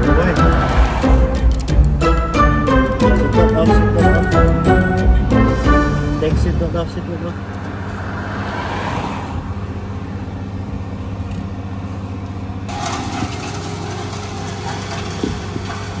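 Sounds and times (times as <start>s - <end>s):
car engine idling: 9.4s - 16.0s.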